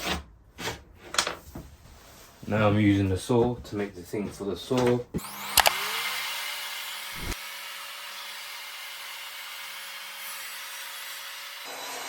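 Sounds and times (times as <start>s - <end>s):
mitre saw cutting board: 5.2s - 12.0s.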